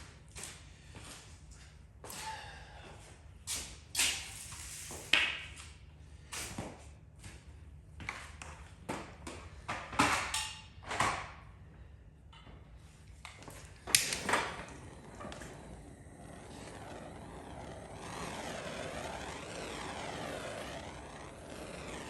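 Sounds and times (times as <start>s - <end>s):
faint steady blowing noise: 13.9s - 22.0s.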